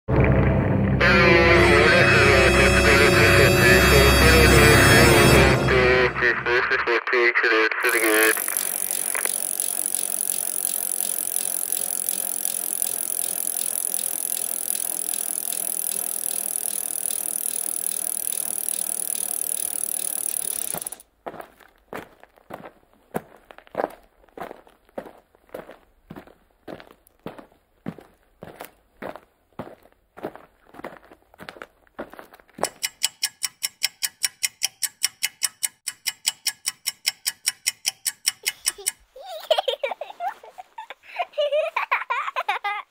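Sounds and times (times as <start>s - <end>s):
rapid even ticking: 7.8s - 21.0s, 32.6s - 39.1s.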